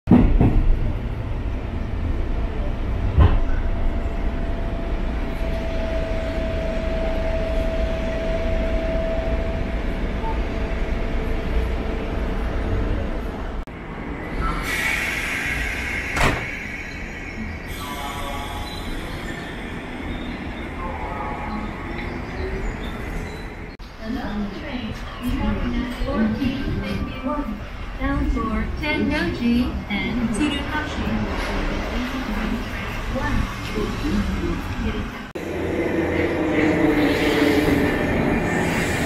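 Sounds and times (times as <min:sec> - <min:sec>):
train rumble: 0:00.1 - 0:39.0
hiss: 0:14.6 - 0:17.0
electric train whine: 0:35.4 - 0:39.0.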